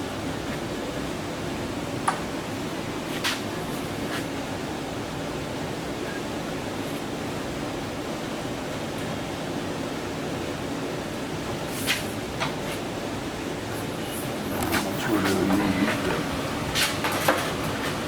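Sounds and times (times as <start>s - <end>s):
rushing background noise: 13.9s - 18.0s.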